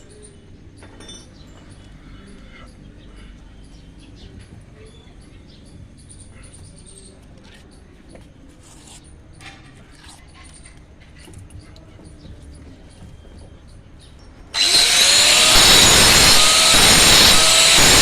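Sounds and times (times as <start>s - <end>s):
power tool whining on stone: 14.6s - 18.0s.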